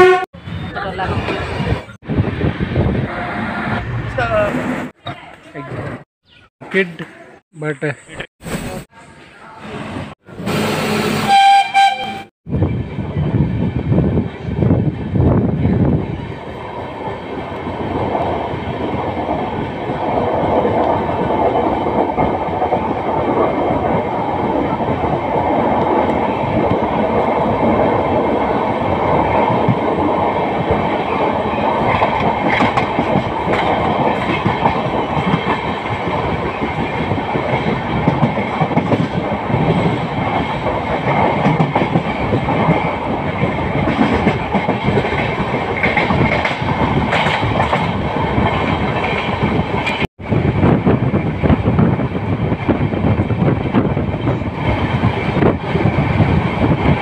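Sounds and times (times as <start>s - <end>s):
train wheels rumbling on rails: 12.5s - 57.0s
clickety-clack over rail joints: 31.8s - 57.0s.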